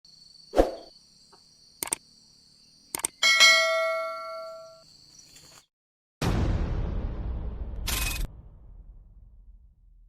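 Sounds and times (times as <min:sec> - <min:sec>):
sharp clicks: 0:01.8 - 0:02.0, 0:02.9 - 0:03.2.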